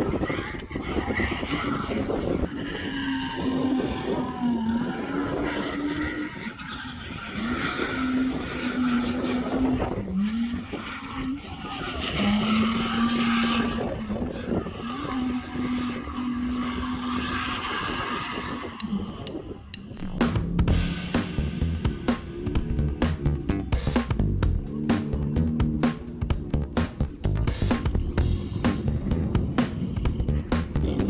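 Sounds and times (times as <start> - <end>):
tyres skidding: 11.8 - 31.0.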